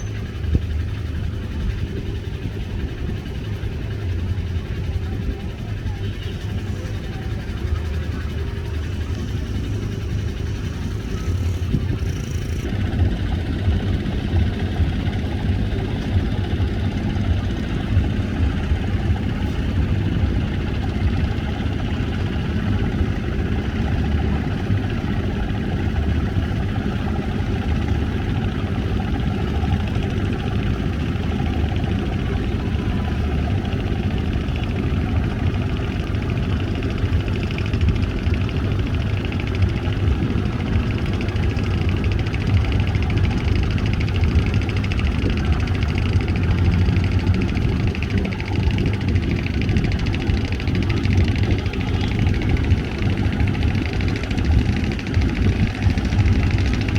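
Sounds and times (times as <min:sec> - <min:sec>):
boat engines rumbling: 0:00.0 - 0:56.9.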